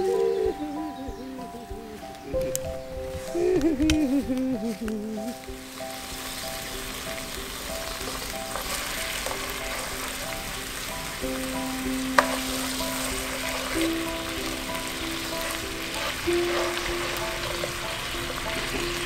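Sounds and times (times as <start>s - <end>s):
onions sizzling in hot oil: 5.4s - 19.0s
wooden spatula stirring: 12.2s - 19.0s.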